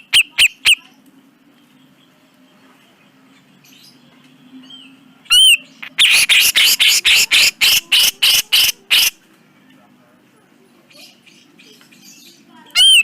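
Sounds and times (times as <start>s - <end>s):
bird harsh scratchy notes: 5.8s - 9.2s.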